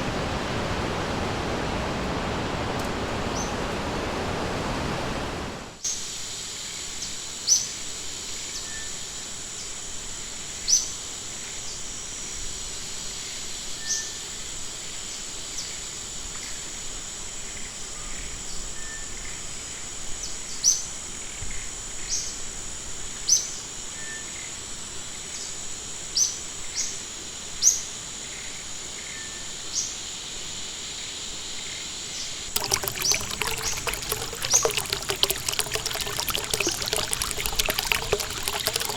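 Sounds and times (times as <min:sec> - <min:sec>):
running water: 0:32.5 - 0:38.9.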